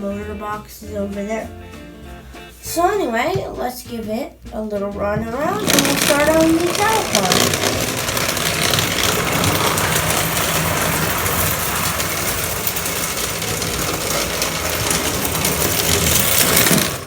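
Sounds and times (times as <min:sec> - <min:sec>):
toy train motor whirring: 0:05.4 - 0:17.0.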